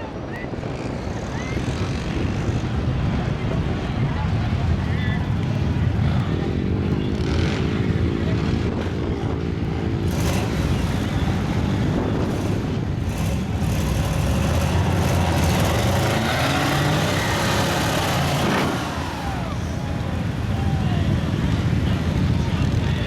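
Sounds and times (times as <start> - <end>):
truck engine revving: 7.0 - 23.0.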